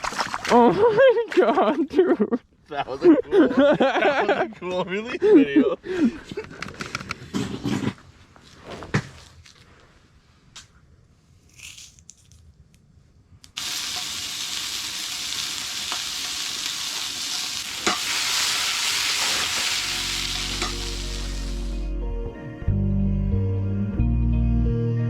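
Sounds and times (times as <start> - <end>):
steady sizzling hiss: 10.0 - 21.9
low music: 19.8 - 25.0.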